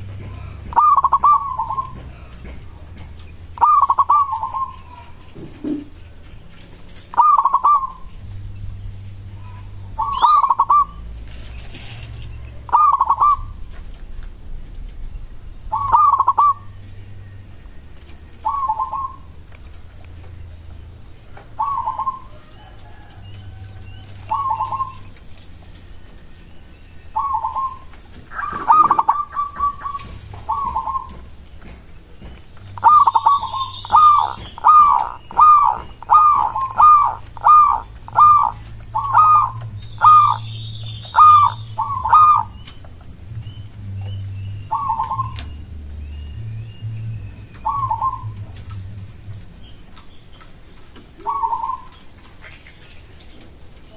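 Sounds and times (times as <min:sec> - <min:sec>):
dove cooing: 0:00.0 - 0:08.2, 0:09.3 - 0:13.9, 0:15.6 - 0:16.8, 0:18.0 - 0:19.9, 0:21.1 - 0:50.0, 0:50.9 - 0:53.9
steady low hum: 0:00.0 - 0:53.9
small bird high chirps: 0:09.3 - 0:13.6, 0:32.6 - 0:50.5.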